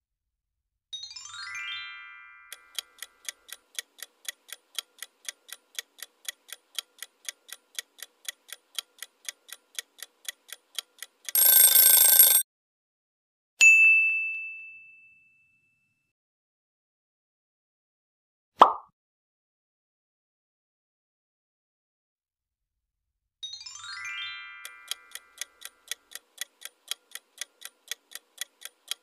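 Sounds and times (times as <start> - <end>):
chime: 1.0 - 2.8, 13.6 - 16.0, 23.4 - 25.4
clock ticking: 2.5 - 12.4, 24.6 - 29.0
bell ding: 13.6 - 16.0.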